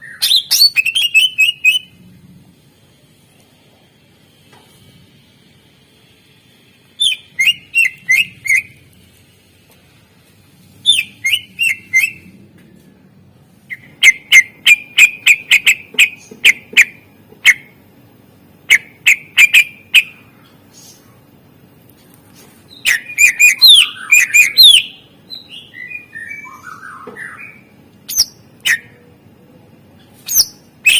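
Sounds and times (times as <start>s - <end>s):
bird singing sharp repeated notes: 7.0s - 8.8s, 18.6s - 20.3s, 22.8s - 29.0s.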